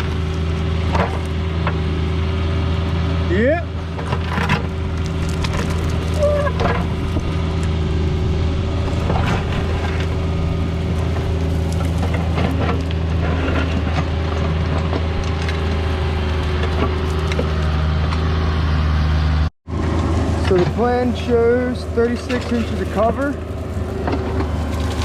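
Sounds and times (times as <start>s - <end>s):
excavator diesel engine running: 0.0s - 25.0s
digging knocks and scrapes: 8.8s - 18.4s, 20.4s - 25.0s.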